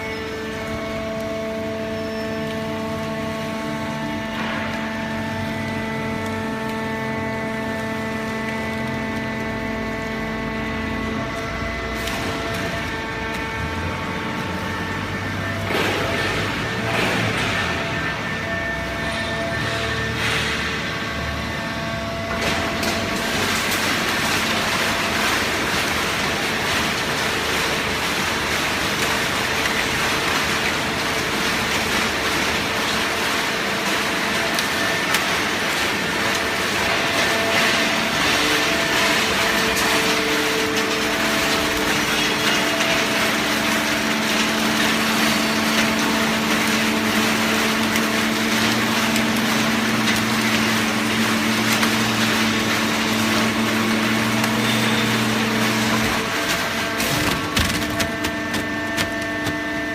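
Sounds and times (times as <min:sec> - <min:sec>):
baler machine hum: 0:00.0 - 0:59.9
cardboard crackling under press: 0:38.9 - 0:59.9.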